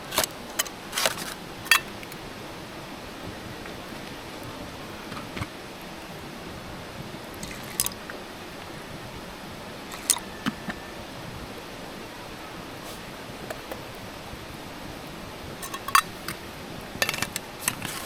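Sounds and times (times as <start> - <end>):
steady background hiss: 0.0 - 18.0
small objects clicking and knocking: 0.2 - 2.2, 15.6 - 16.4.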